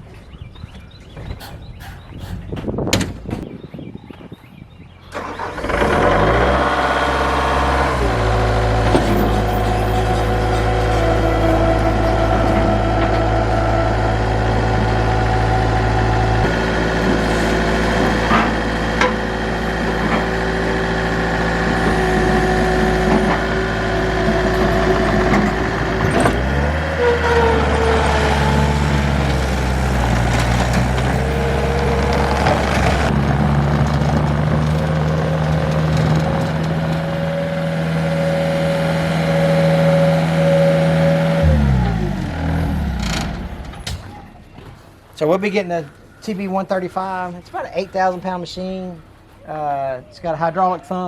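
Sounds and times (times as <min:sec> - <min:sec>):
engine running: 0:05.1 - 0:45.2.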